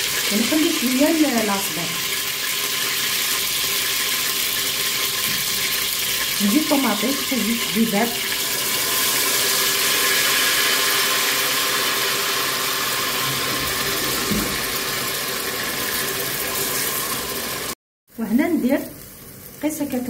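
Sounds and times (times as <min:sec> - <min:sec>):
onions and meat sizzling in oil: 0:00.0 - 0:20.0.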